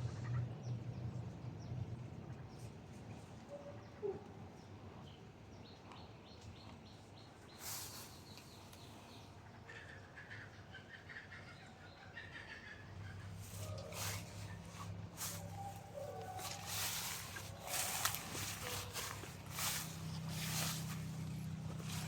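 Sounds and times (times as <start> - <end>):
faint bird calls: 7.5 - 22.0.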